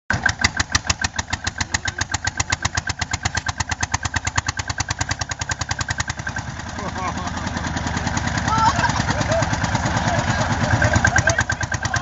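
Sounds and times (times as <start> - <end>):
tractor diesel engine running: 0.1 - 12.0.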